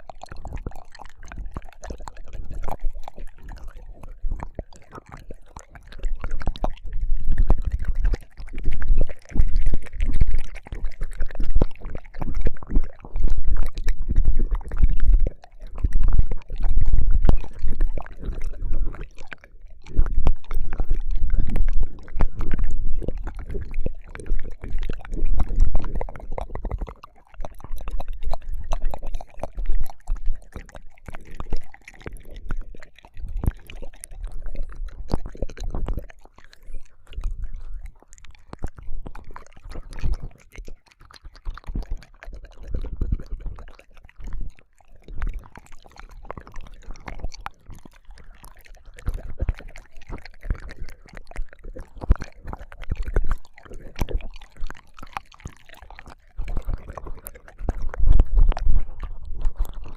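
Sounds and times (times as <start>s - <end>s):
wet tongue smacks and slurps: 0.0s - 59.9s.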